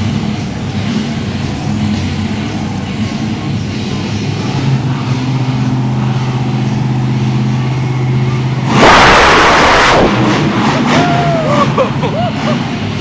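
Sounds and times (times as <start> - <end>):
truck engine running: 0.0 - 13.0
loud noisy blast: 4.4 - 12.9.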